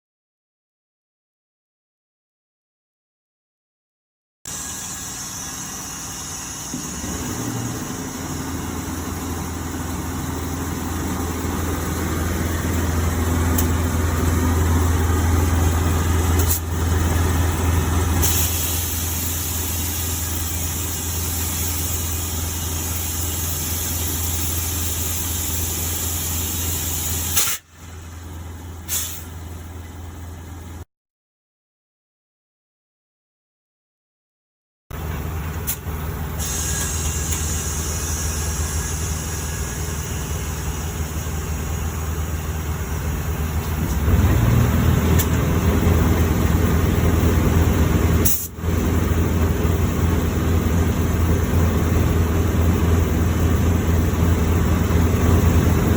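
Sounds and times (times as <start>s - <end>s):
air hissing: 4.5s - 11.1s, 18.2s - 27.8s, 28.9s - 29.3s, 36.4s - 41.6s
diesel truck engine running: 4.5s - 30.8s, 35.0s - 55.9s
sharp click: 27.3s - 27.7s.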